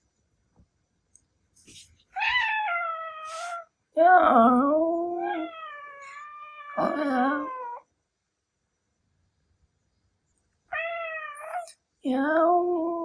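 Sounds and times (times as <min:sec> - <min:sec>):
cat yowling: 0:02.1 - 0:03.6, 0:05.2 - 0:07.8, 0:10.7 - 0:11.7.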